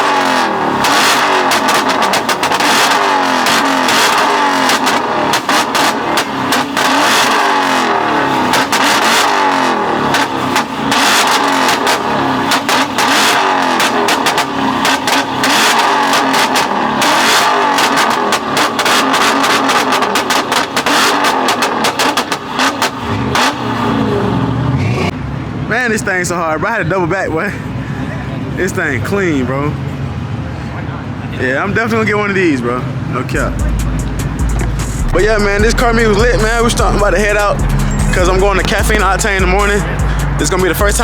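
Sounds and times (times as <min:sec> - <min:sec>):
exhaust pops and crackles: 0:00.0 - 0:24.0, 0:33.3 - 0:41.0
car engine revving: 0:00.0 - 0:25.7, 0:32.0 - 0:41.0.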